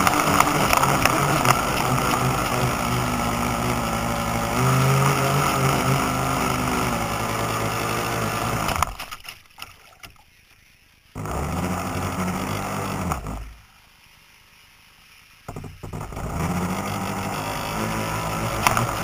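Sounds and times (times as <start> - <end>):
boat motor running: 0.0 - 9.0, 11.2 - 13.6, 15.5 - 19.0
water noise: 0.0 - 19.0.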